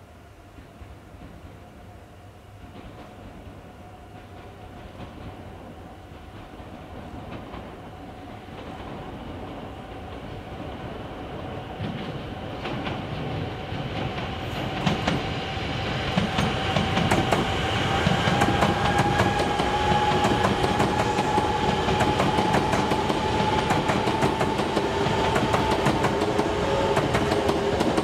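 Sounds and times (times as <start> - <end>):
wheels clicking over rail joints: 16.0 - 28.0.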